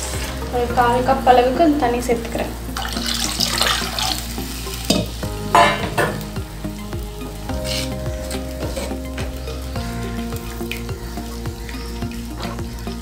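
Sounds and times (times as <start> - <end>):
spoon scraping pot: 7.6 - 9.0
wooden spoon stirring in clay pot: 7.6 - 9.2.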